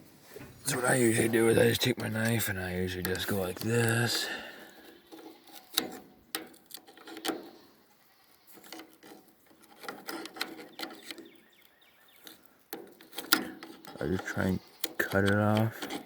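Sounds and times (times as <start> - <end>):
metallic clicks and knocks: 5.1 - 7.6, 8.6 - 11.4, 12.2 - 16.0.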